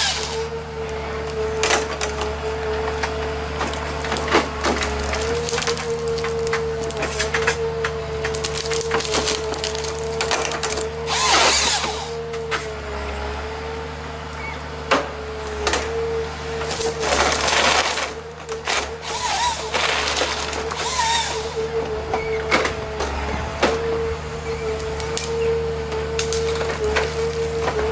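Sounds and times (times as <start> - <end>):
heavy diesel machine running: 0.0 - 27.9
wood splintering and cracking: 2.9 - 12.8, 16.6 - 21.6, 26.1 - 27.9.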